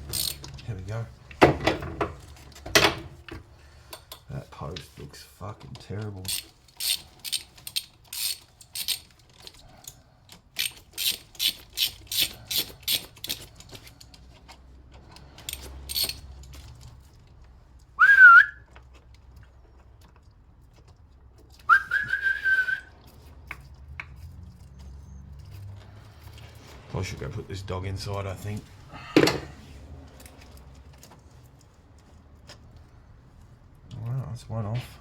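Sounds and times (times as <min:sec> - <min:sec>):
ratchet spanner clicking: 0:00.0 - 0:00.6, 0:06.2 - 0:14.0, 0:15.4 - 0:16.9
whistled notes: 0:18.0 - 0:18.6, 0:21.7 - 0:22.9.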